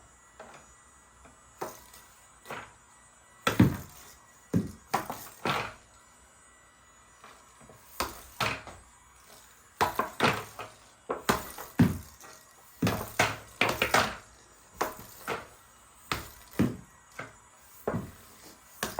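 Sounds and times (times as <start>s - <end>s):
air hockey toy knocks and clacks: 3.5s - 5.8s, 8.0s - 8.8s, 9.8s - 18.9s.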